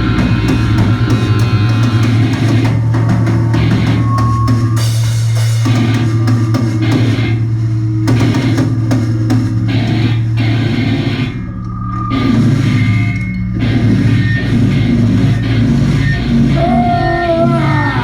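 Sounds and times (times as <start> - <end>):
pounding drum kit with cymbals: 0.0 - 11.5
distorted guitar: 0.0 - 18.0
heavy sustained bass note: 0.0 - 18.0.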